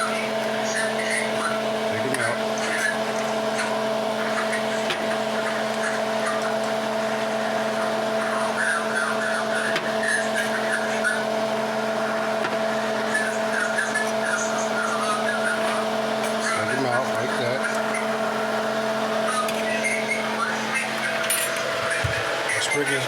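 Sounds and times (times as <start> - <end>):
electric motor hum: 0.0 - 23.0.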